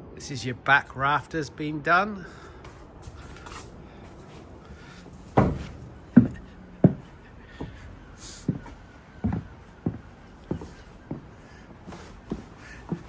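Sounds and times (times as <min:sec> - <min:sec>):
hammer knocking on timber: 0:05.4 - 0:07.0.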